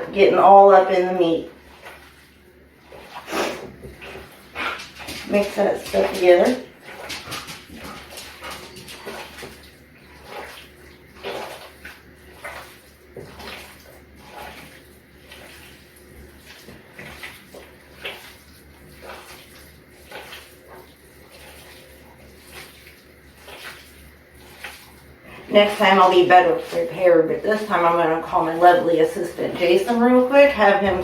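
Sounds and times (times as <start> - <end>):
hands squelching meat mixture: 1.0 - 31.0.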